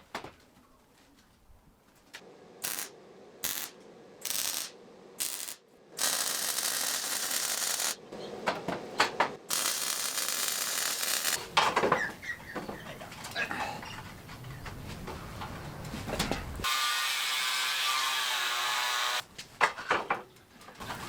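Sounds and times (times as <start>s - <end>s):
welder arc crackling: 2.6s - 8.0s, 9.5s - 11.4s.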